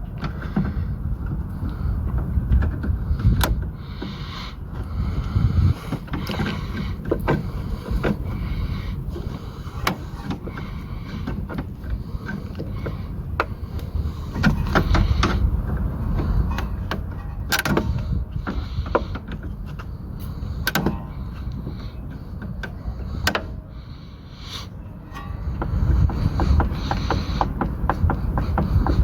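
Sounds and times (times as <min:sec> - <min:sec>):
hand tools clicking on metal: 0:05.8 - 0:23.6, 0:25.1 - 0:29.0
low rumble: 0:25.0 - 0:29.0.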